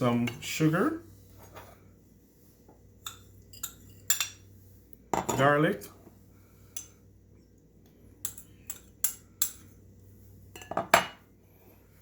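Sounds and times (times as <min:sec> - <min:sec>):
utensils clinking against dishes: 0:03.0 - 0:04.5.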